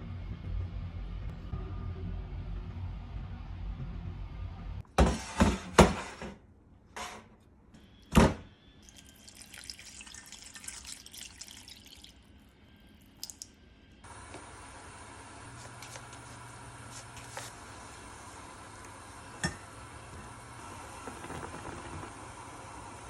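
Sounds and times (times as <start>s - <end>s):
water running in sink: 8.8s - 12.4s, 13.0s - 13.5s, 14.1s - 23.0s.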